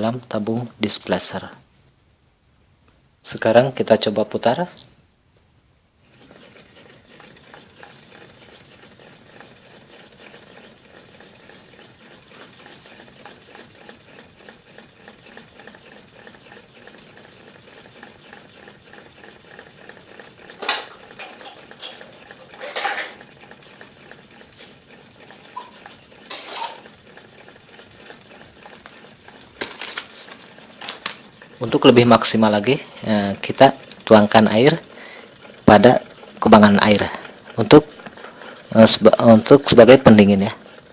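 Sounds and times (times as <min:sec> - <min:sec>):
small engine light rattle: 0:06.1 - 0:40.9.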